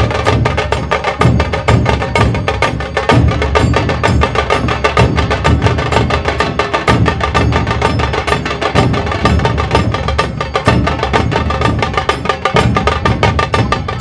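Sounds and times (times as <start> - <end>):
heavy low drum beats: 0.0 - 14.0.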